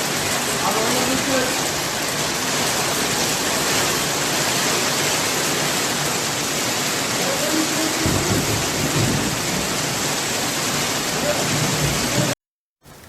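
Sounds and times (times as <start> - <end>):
heavy rain pouring: 0.0 - 13.0
low thunder rumble: 7.9 - 12.4.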